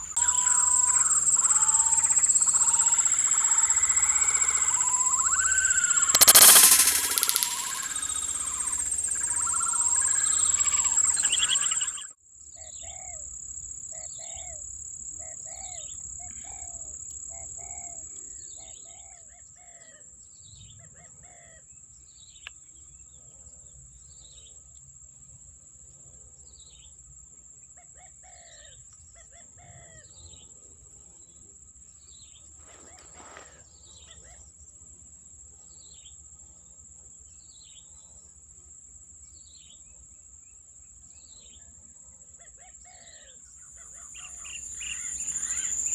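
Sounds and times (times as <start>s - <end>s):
birds chirping: 0.0s - 12.0s, 44.1s - 45.9s
insect drone: 0.0s - 12.1s, 43.8s - 45.9s
sharp click: 6.1s - 9.2s.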